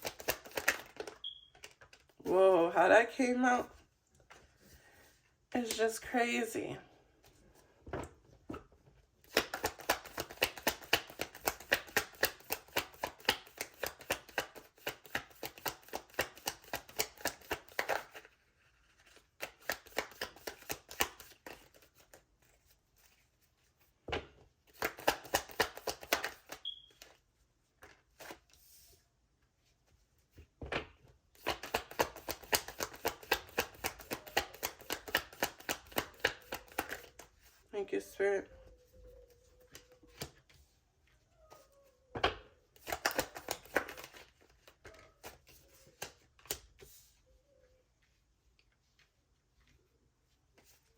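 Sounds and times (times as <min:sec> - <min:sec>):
cards being shuffled: 0:00.0 - 0:02.3, 0:09.2 - 0:23.9, 0:24.7 - 0:29.0, 0:31.4 - 0:37.6, 0:39.1 - 0:41.8, 0:42.7 - 0:47.2.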